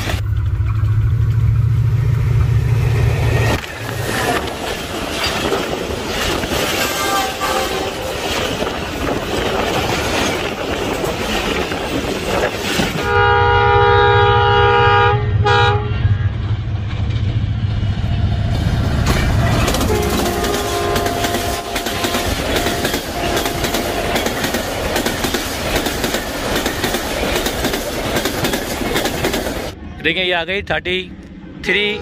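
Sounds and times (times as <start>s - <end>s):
heavy engine rumble: 0.0s - 6.0s
train wheels clattering on rails: 2.4s - 13.1s, 16.5s - 29.8s
locomotive horn: 6.6s - 8.4s, 13.0s - 16.4s, 19.7s - 24.4s.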